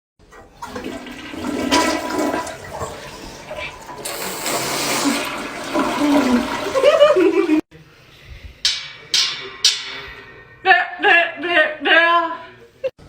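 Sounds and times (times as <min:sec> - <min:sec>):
toilet flushing: 0:00.2 - 0:07.6.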